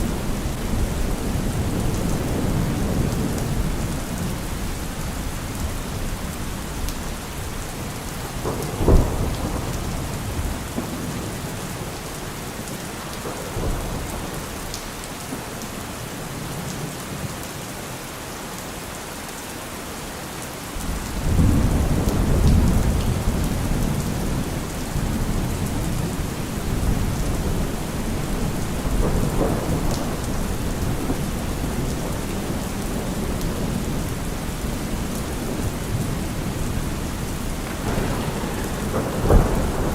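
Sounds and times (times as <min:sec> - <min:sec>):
low rumble of thunder: 0:00.0 - 0:15.6, 0:20.8 - 0:39.9
heavy rain on car roof: 0:00.0 - 0:39.9
sharp thunder clap: 0:08.3 - 0:11.9, 0:37.4 - 0:39.9.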